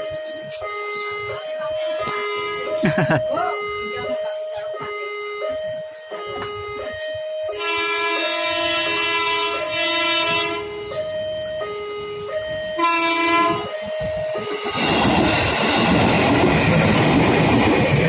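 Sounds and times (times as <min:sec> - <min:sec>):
level crossing alarm two-tone: 0:00.0 - 0:17.6
train horn blasts: 0:02.0 - 0:02.8, 0:07.5 - 0:10.9, 0:12.7 - 0:13.8.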